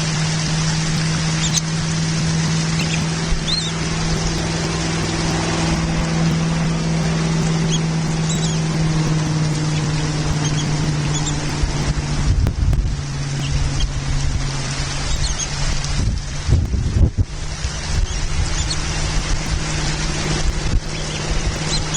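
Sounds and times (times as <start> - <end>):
gust buffeting microphone: 0.0 - 21.9
steady low hum: 0.0 - 21.9
wind on microphone: 0.0 - 21.9
faint bird chirps: 1.3 - 1.7, 6.0 - 11.9.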